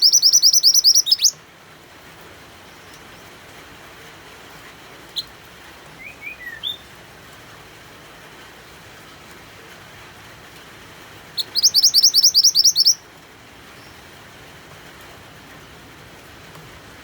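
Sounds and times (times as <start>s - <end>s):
songbird trilling: 0.0s - 1.4s, 6.0s - 6.9s, 11.3s - 13.0s
steady rain-like hiss: 0.0s - 17.0s.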